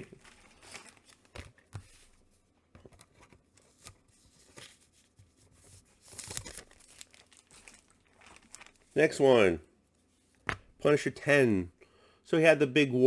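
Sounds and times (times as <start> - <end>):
comic books taps and rustles: 0.0 - 5.5, 10.4 - 10.8.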